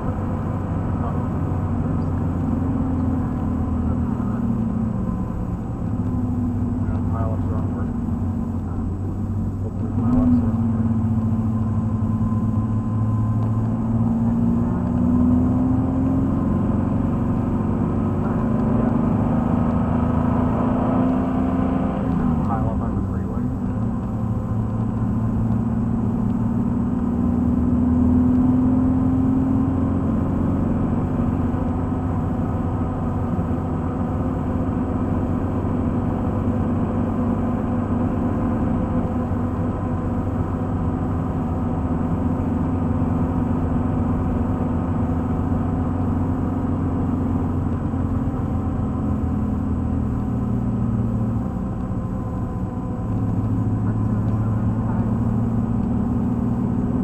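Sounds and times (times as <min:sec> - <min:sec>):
car engine running hard: 0:00.0 - 0:57.0
road and tyre noise: 0:00.0 - 0:57.0.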